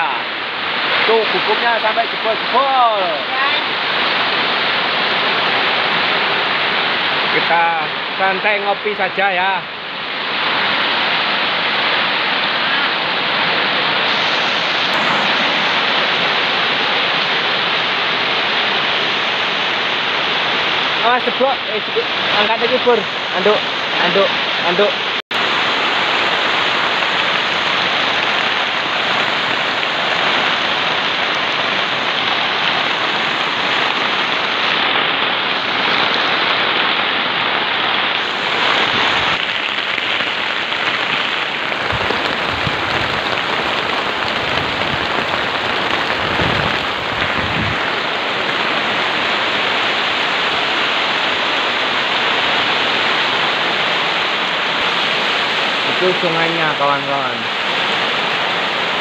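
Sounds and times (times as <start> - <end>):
heavy rain on a hut: 0.0 - 59.0.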